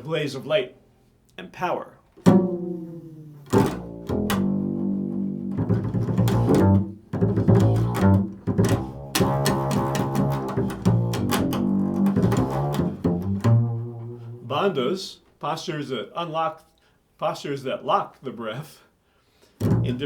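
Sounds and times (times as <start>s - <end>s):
double bass plucked notes: 2.2s - 14.6s, 19.6s - 20.0s.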